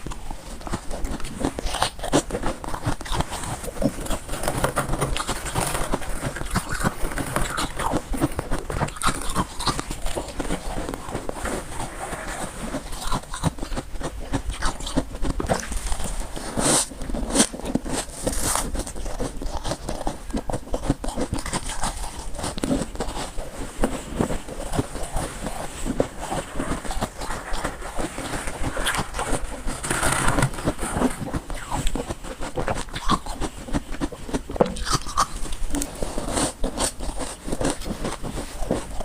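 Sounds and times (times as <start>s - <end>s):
chewing crunchy frost: 0.0s - 39.0s.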